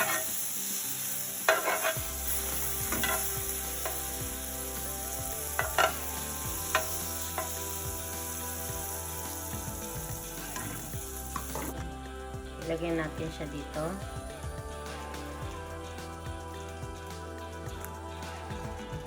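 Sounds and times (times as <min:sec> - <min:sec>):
butter sizzling in frying pan: 0:00.0 - 0:11.7.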